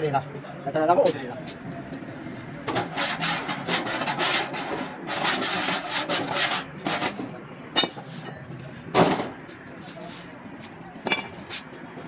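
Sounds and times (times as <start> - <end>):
rasping sanding strokes on metal: 2.8 - 7.0.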